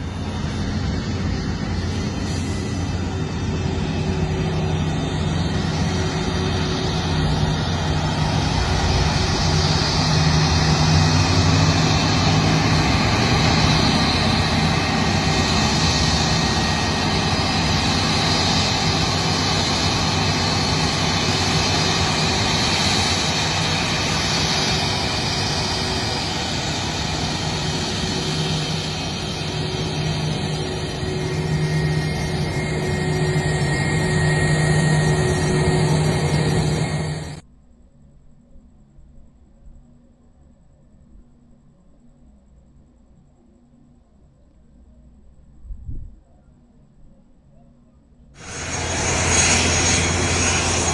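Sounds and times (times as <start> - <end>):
jet engines rumbling: 0.0 - 37.4, 48.4 - 50.9.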